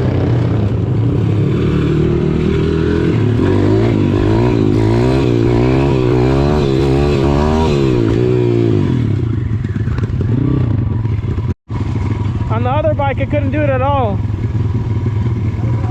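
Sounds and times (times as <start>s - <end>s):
small motorbike engine revving: 1.3s - 10.6s.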